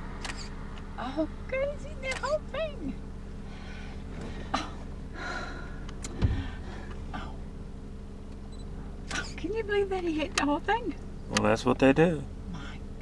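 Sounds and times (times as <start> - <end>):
car engine idling: 0.0 - 13.0
soft breaths: 3.4 - 7.4.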